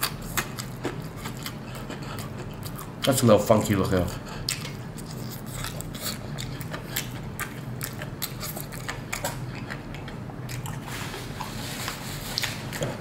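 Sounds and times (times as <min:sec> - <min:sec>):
chewing crispy fried chicken: 0:00.0 - 0:13.0
paper napkin rustling: 0:10.9 - 0:13.0.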